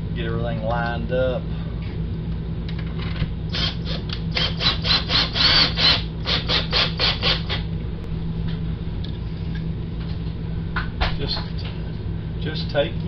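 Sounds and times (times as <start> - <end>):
cordless drill driving screw: 3.5 - 7.6.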